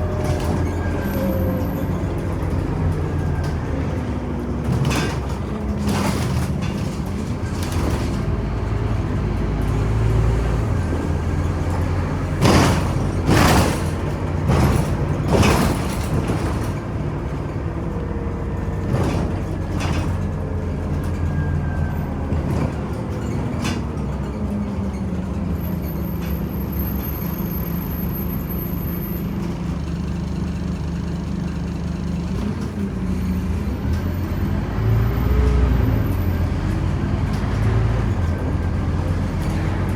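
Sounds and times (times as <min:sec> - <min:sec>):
bus engine drone: 0:00.0 - 0:39.9
loud knocks and rattles: 0:11.4 - 0:17.0.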